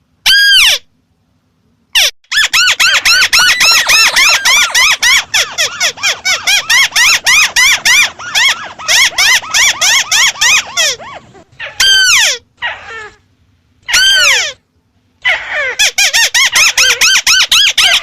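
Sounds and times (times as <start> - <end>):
bird chattering nasal calls: 2.6 - 10.8.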